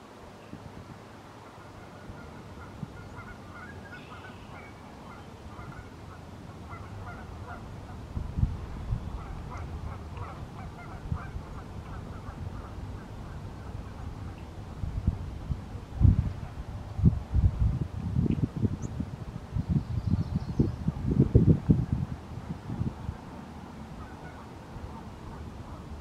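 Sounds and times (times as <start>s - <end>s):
distant honking bird calls: 1.6s - 8.0s, 9.1s - 14.5s, 24.0s - 25.9s.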